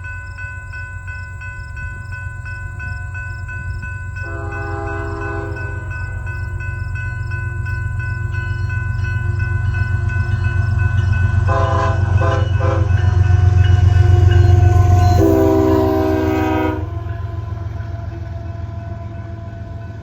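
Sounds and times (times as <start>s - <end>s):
diesel locomotives rumbling: 0.0s - 20.0s
locomotive air horn blasts: 4.2s - 6.0s, 11.4s - 17.3s.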